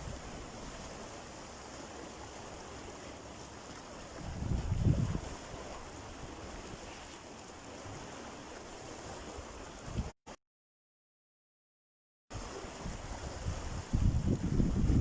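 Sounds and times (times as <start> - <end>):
surf washing on a beach: 0.0 - 10.1, 12.3 - 15.0
wind buffeting the microphone: 4.1 - 6.9, 9.8 - 10.1, 12.4 - 15.0.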